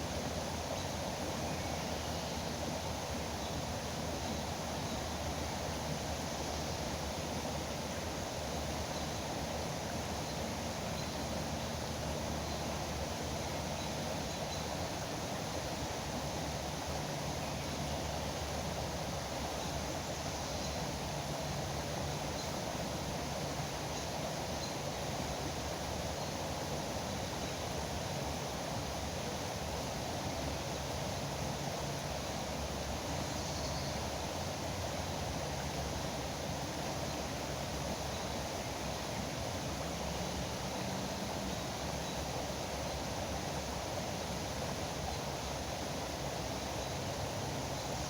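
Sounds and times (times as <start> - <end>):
river water rushing: 0.0 - 48.0.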